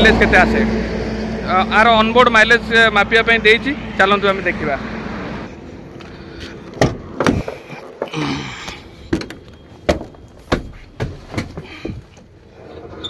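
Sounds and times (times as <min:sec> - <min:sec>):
knocks and thumps: 0:06.8 - 0:08.2, 0:09.1 - 0:12.3.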